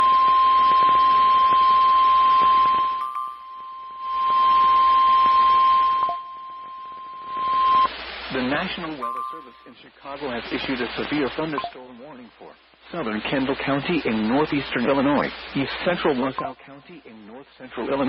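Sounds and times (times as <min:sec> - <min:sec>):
steady high alert tone: 0:03.0 - 0:04.2, 0:09.0 - 0:09.8.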